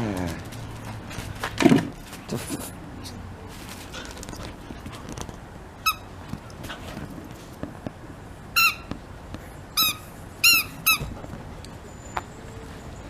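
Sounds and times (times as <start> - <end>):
squeaky dog toy squeaking: 5.8 - 6.1, 8.6 - 8.9, 9.8 - 11.1.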